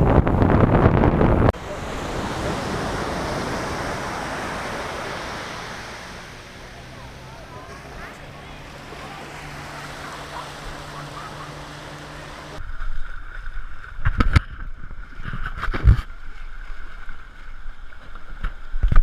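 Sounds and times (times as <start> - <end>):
surf: 0.0 - 19.0
wind hiss: 0.4 - 12.6
water splashing: 1.5 - 15.6.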